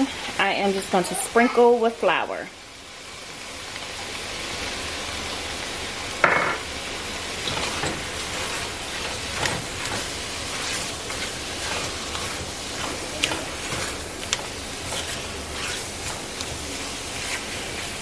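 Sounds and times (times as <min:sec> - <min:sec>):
meat sizzling in hot oil: 0:00.0 - 0:18.0
utensil scraping a pot: 0:07.4 - 0:18.0.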